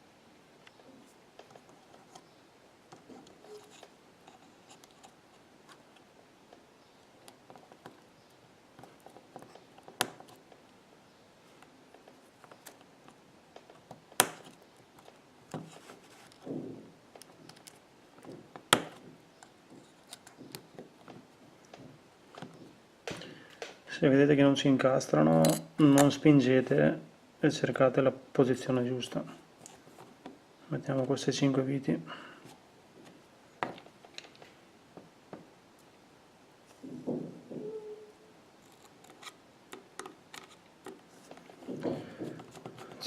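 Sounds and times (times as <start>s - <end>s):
faint scratching of repair tools: 0.9s - 6.1s, 13.7s - 16.5s, 38.6s - 43.0s.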